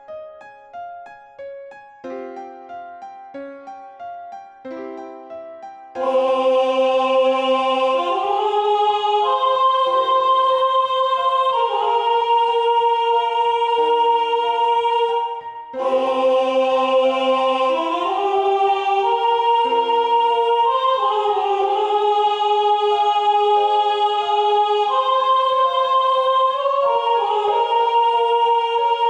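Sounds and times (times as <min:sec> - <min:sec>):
choir singing sustained chords: 0:06.0 - 0:29.0.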